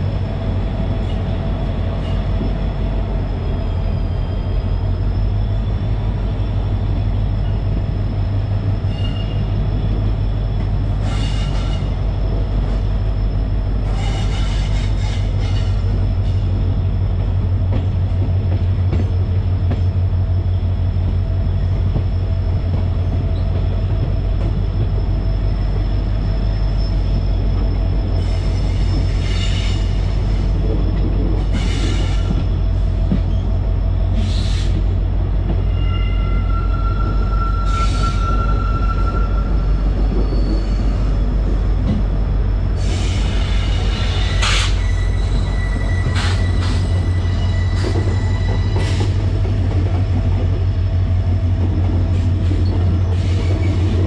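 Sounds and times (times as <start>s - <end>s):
train carriage rumbling: 0.0s - 54.0s
wheel squeals: 7.2s - 16.5s, 35.5s - 42.0s, 42.8s - 49.3s.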